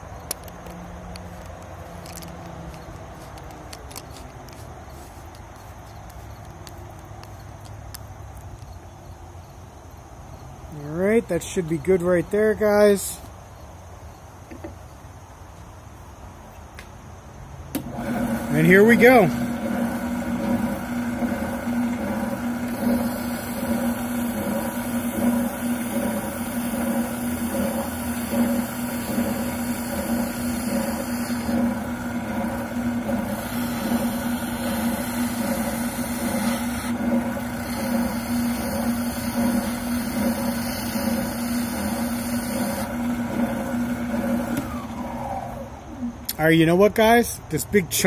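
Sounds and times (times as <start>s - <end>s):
oscillating sander humming: 17.8s - 46.3s.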